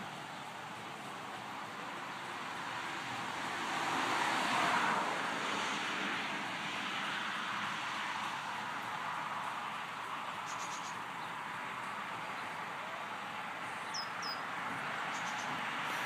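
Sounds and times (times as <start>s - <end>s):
outdoor background hiss: 0.0s - 16.0s
faint high bird ticks: 8.2s - 12.8s, 13.6s - 15.9s
high falling bird chirps: 13.8s - 14.5s.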